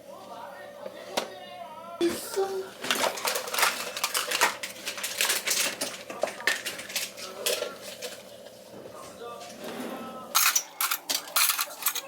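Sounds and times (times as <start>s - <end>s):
dishes and cutlery clattering: 2.8s - 8.2s, 10.4s - 12.0s.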